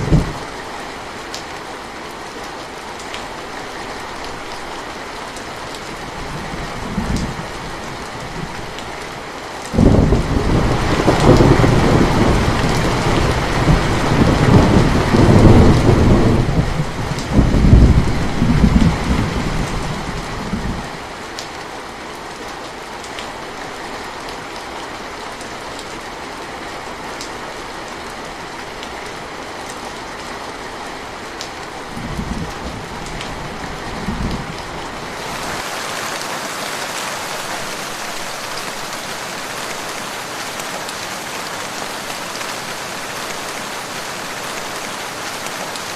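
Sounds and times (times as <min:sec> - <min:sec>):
thunder rumbling: 0:00.0 - 0:00.5, 0:09.8 - 0:20.9
steady rain: 0:00.0 - 0:45.9.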